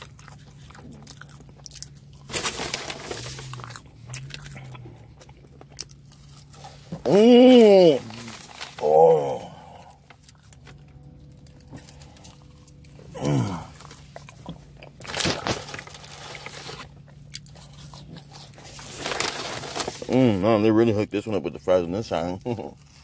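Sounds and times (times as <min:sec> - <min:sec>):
close-up chewing and crunching: 0:00.0 - 0:20.4
low steady hum: 0:00.0 - 0:23.0
person humming mmm: 0:06.9 - 0:10.0, 0:13.0 - 0:13.9.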